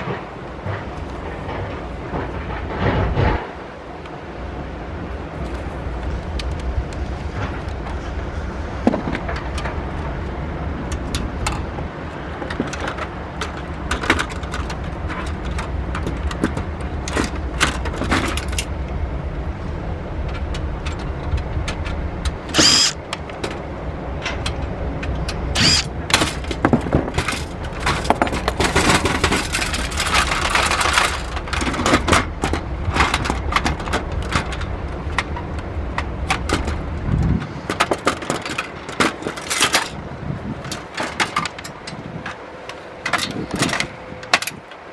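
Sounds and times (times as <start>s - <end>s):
steady low rumble: 0.0s - 44.9s
metal and plastic parts scraping: 20.3s - 23.6s, 24.2s - 40.0s.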